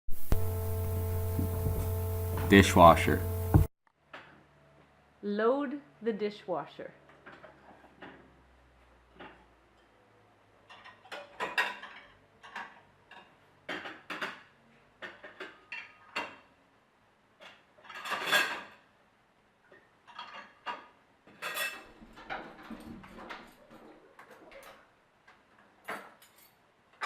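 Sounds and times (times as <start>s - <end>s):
dishes and cutlery clattering: 10.7s - 16.5s, 17.4s - 18.9s, 20.0s - 24.9s, 25.7s - 27.0s.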